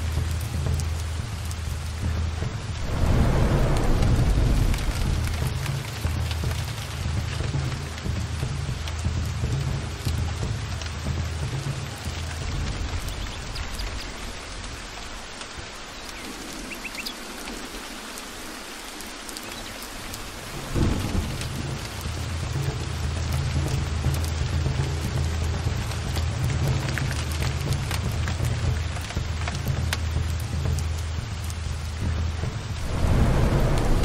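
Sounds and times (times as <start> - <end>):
heavy rain falling: 0.0 - 34.0
rolling thunder: 2.6 - 7.3, 20.3 - 22.6, 32.6 - 34.0
sharp thunderclap: 2.7 - 7.1, 20.5 - 22.2, 32.7 - 34.0.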